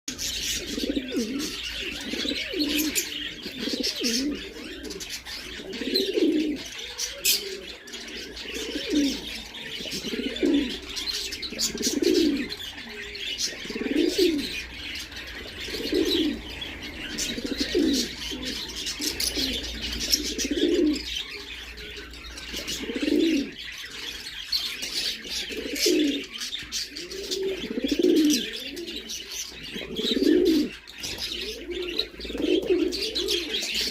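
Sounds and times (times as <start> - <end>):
birds chirping and twittering: 0.0 - 33.9
pigeons cooing: 0.1 - 33.9.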